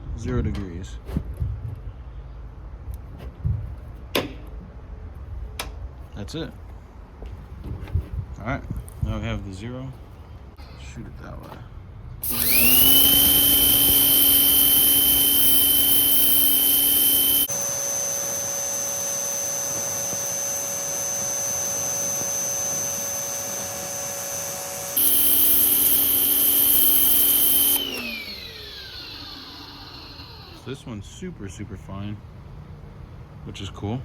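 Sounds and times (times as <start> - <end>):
pressure washer spraying: 12.2 - 17.6, 18.9 - 29.8
quieter motor hum: 12.2 - 31.3.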